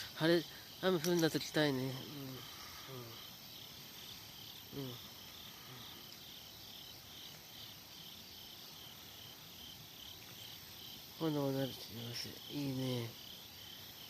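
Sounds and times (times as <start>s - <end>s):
insects chirping: 0.0s - 14.0s
man murmuring: 1.7s - 3.3s, 4.7s - 6.0s, 11.9s - 13.2s.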